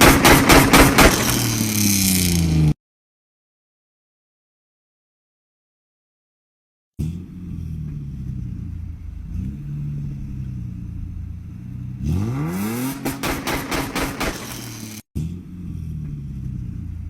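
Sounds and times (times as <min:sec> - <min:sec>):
car engine idling and revving: 0:00.0 - 0:02.7, 0:07.0 - 0:17.0
exhaust cracks and crackles: 0:00.2 - 0:02.7, 0:07.8 - 0:15.0.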